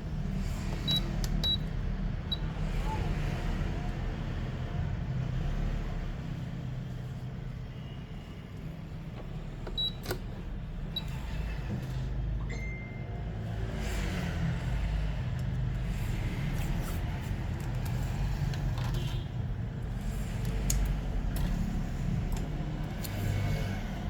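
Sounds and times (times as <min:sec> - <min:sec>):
brief tone: 0:12.4 - 0:13.4
road traffic rumble: 0:13.2 - 0:24.0.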